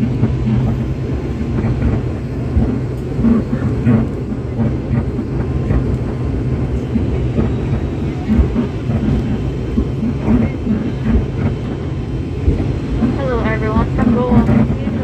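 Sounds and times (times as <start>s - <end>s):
airliner cabin rumble: 0.0s - 15.0s
faint voices murmuring: 3.2s - 11.8s.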